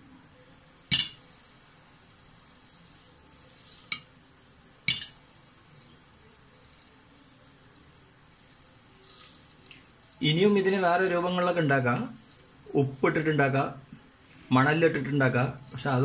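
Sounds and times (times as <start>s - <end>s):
faint hiss: 0.0s - 16.0s
popcorn kernels popping: 0.7s - 13.2s.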